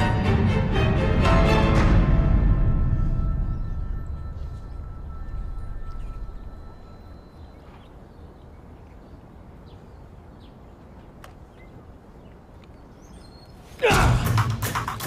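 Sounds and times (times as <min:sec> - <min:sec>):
low rumble: 0:00.0 - 0:08.1
faint bird chirps: 0:02.9 - 0:13.8.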